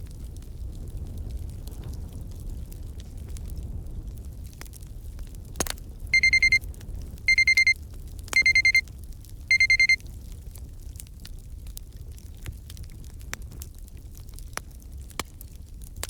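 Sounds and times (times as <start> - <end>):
crackling fire: 0.0 - 16.0
timer alarm high beeps: 6.2 - 6.6, 7.3 - 7.8, 8.4 - 8.8, 9.5 - 10.0.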